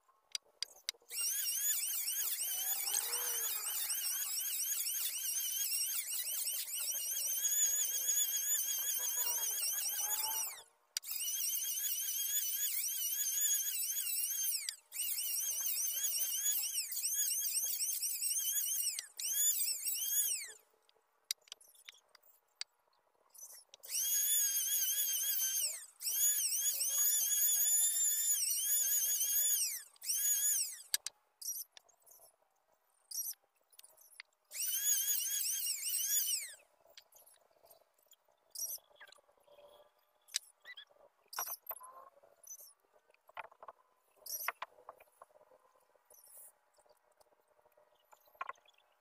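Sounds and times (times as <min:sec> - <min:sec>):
electric planer whining: 0:01.1 - 0:20.6.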